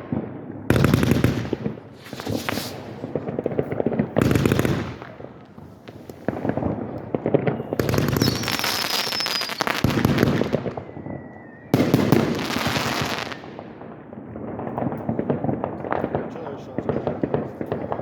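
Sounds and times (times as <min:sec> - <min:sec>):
fireworks crackling and popping: 0:00.0 - 0:18.0
firework whistle: 0:01.5 - 0:03.0, 0:07.2 - 0:13.6.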